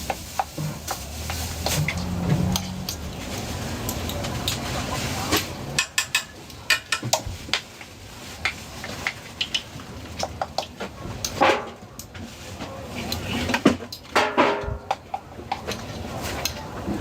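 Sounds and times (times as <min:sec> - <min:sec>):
metal utensils clicking on pans: 0:00.0 - 0:07.7.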